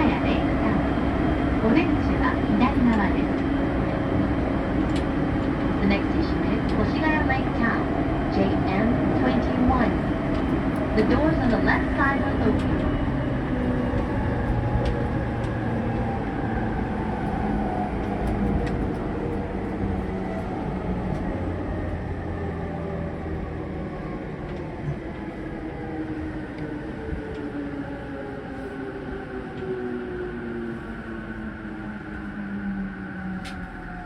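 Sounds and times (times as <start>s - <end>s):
train running on rails: 0.0s - 34.0s.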